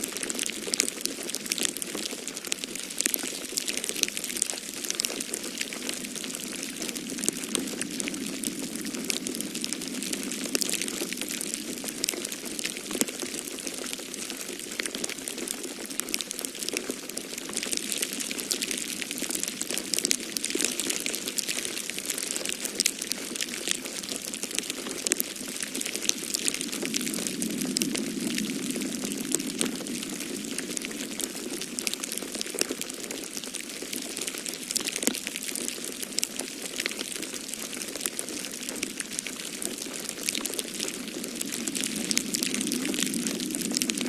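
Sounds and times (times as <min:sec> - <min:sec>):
wood fire crackling: 0:00.1 - 0:44.0
snowstorm wind rushing: 0:05.9 - 0:12.6, 0:25.8 - 0:31.8, 0:40.6 - 0:44.0.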